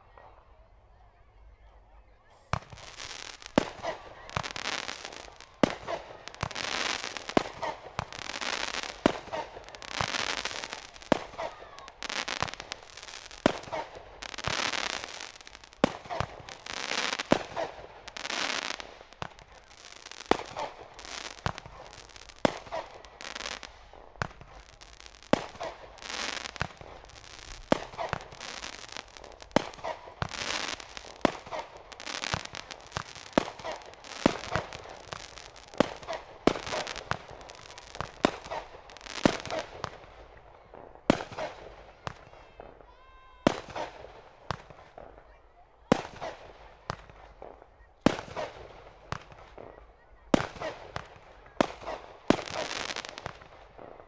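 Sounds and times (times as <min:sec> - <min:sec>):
fireworks bangs: 0:02.0 - 0:54.0
fireworks hissing: 0:02.2 - 0:40.1.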